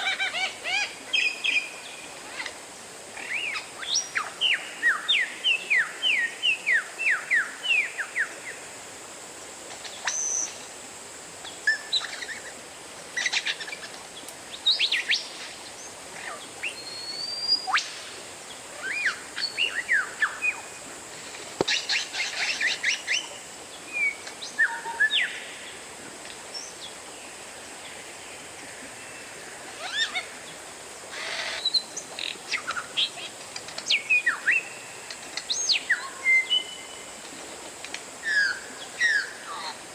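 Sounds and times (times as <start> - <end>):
faint hiss: 0.0 - 39.9
bird singing whistled notes: 16.6 - 17.9.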